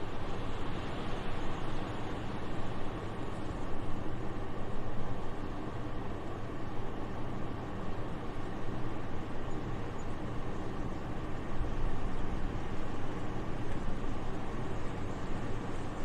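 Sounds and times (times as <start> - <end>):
soft steady wind: 0.0 - 16.0.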